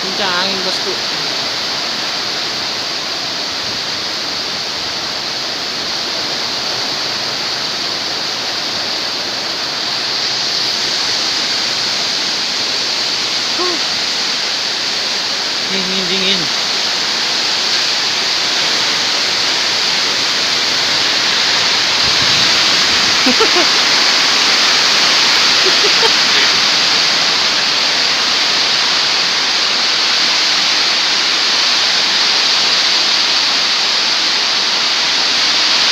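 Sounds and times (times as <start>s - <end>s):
strong wind blowing: 17.0s - 29.9s.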